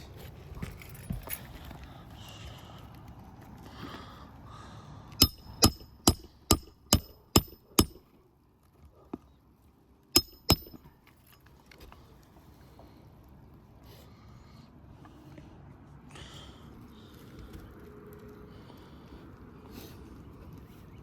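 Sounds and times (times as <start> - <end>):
hammer striking roofing nails: 5.2 - 8.0, 10.2 - 10.8.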